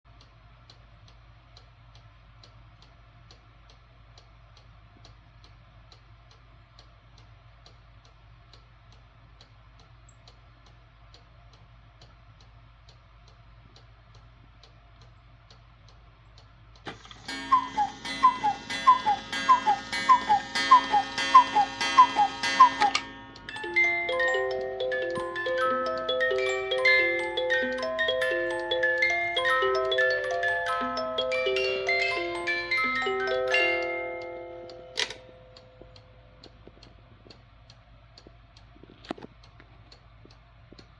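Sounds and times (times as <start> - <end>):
cuckoo clock ticking: 12.0 - 38.7
clock mechanism clattering: 16.8 - 30.6
music box playing a tune: 16.9 - 35.8
cuckoo call: 17.0 - 23.3.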